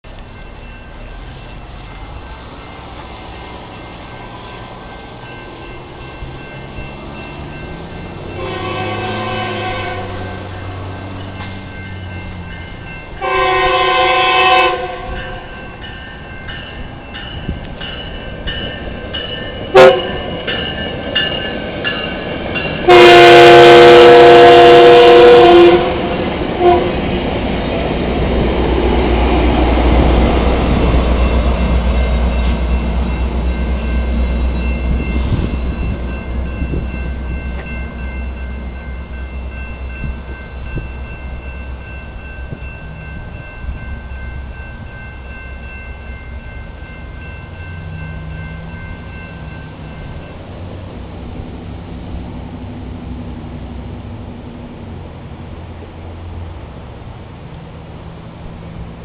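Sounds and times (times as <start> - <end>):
train rumbling: 0.0 - 59.0
bell ringing: 0.2 - 9.6, 10.7 - 13.9, 15.0 - 23.2, 31.1 - 50.5
train horn blasts: 8.3 - 10.7, 13.2 - 15.4, 19.7 - 20.3, 22.8 - 27.0.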